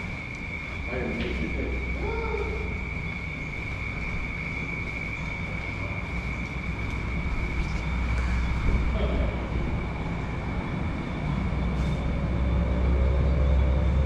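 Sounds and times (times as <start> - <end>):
high whine: 0.0 - 14.0
wind rumble: 0.0 - 14.0.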